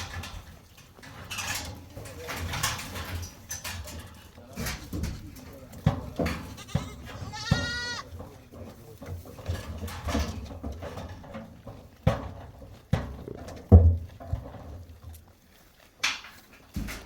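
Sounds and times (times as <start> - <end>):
knocks and thumps: 0.0 - 15.1
goat bleating: 6.4 - 8.1.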